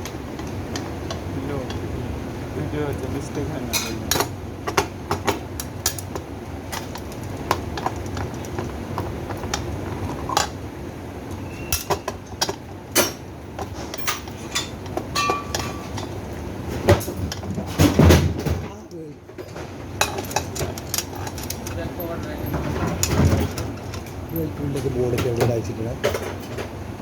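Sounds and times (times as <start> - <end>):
clinks and knocks of tools: 11.7 - 16.2, 16.9 - 26.7.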